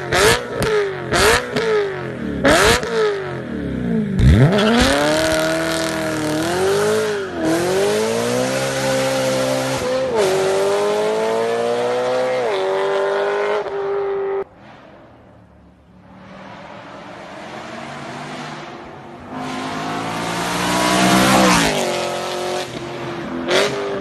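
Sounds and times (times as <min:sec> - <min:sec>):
car engine revving through gears: 0:02.4 - 0:03.1, 0:04.2 - 0:14.5, 0:17.4 - 0:24.0.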